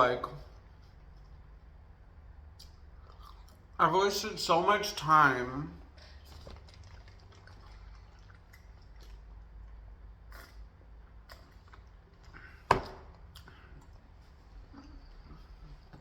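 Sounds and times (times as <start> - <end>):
wet chewing: 2.5 - 3.8, 6.0 - 16.0.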